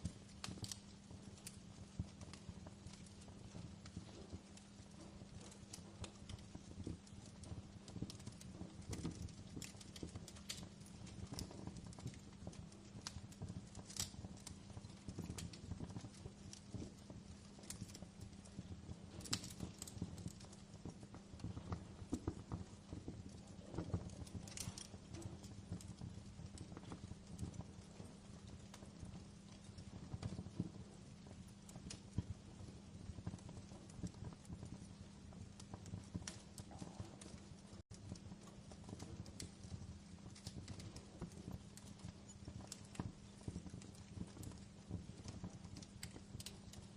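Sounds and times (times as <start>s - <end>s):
fire crackling and popping: 0.0s - 46.9s.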